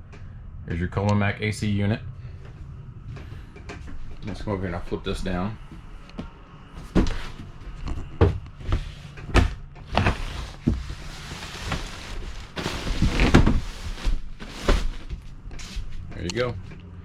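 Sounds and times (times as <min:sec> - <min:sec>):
bed frame knocks and clunks: 0:06.8 - 0:16.3.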